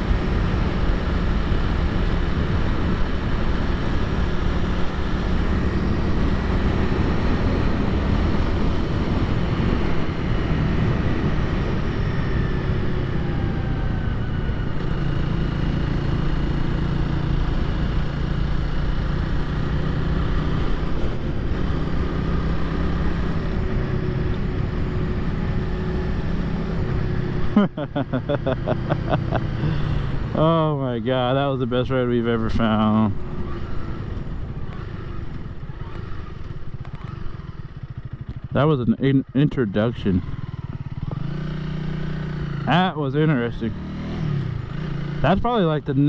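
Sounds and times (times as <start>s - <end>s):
motorcycle engine running: 0.0s - 46.0s.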